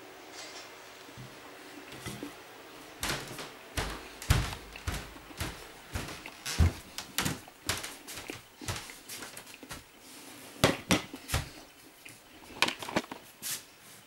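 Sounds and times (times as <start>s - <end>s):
household objects knocking: 3.0s - 7.8s.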